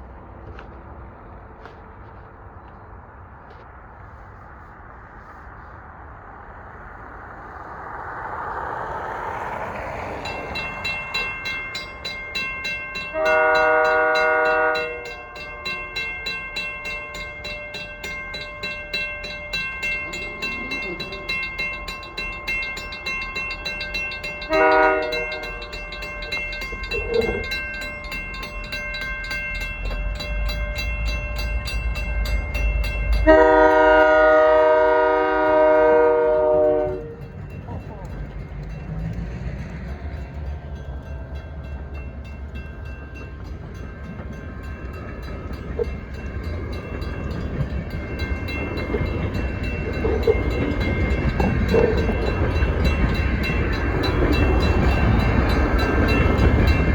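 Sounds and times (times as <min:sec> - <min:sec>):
train engine and wheel rumble: 0:00.0 - 0:56.9
crossing bell ringing: 0:07.7 - 0:56.9
locomotive horn blasts: 0:13.1 - 0:15.7, 0:24.4 - 0:25.8, 0:33.2 - 0:37.2.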